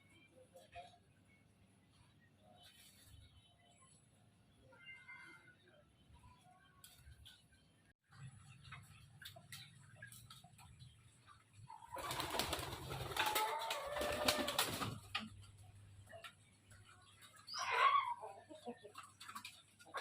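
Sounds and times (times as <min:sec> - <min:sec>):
pigeons flapping wings: 0:11.9 - 0:15.2.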